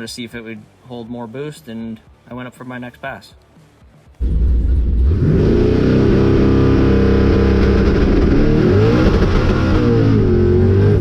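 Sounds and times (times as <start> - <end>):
drag car engine revving: 4.2 - 11.0.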